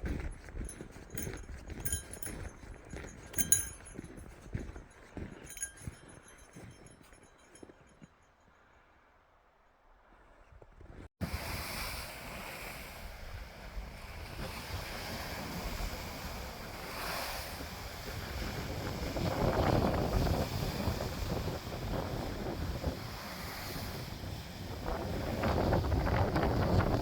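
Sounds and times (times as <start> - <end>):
wind buffeting microphone: 0.0 - 7.7, 13.1 - 27.0.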